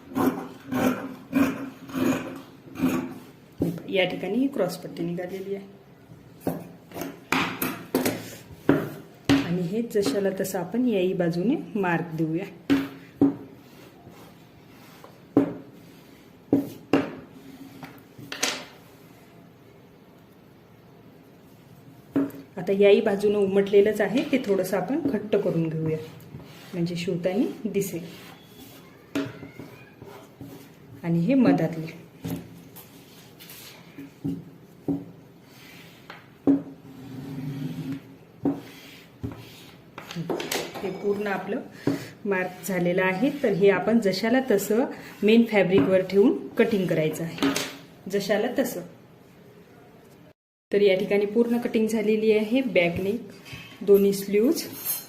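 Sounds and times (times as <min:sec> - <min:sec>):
tool scratching across cloth: 0:25.3 - 0:30.8.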